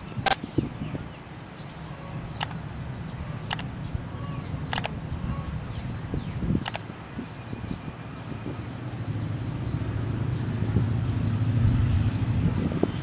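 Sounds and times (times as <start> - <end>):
sharp clicks: 2.4 - 2.6, 3.5 - 3.7, 4.7 - 4.9, 6.6 - 6.8.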